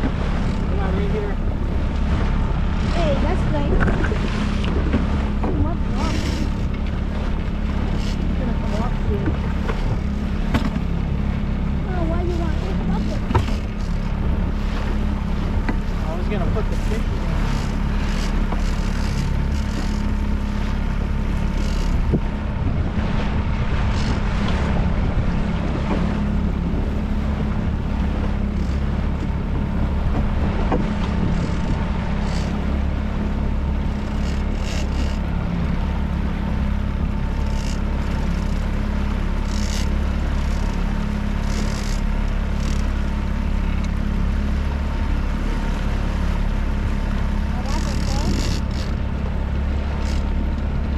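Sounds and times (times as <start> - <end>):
wind on microphone: 0.0 - 39.5
outboard motor running: 0.0 - 50.9
water splashing at hull: 0.0 - 50.9.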